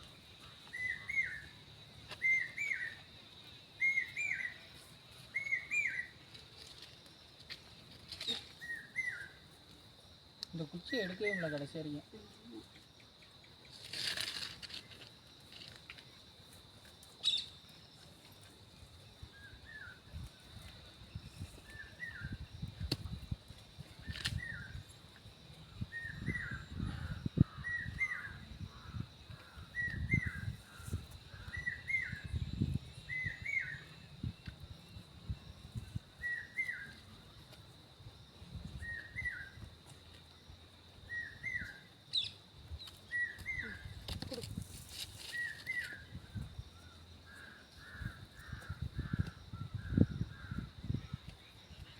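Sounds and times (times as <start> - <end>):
insect droning: 0.0 - 51.9
bird chirping: 17.2 - 17.6.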